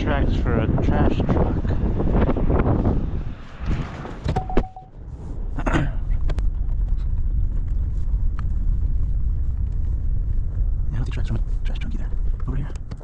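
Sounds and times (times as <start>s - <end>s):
short beep: 4.3s - 5.0s.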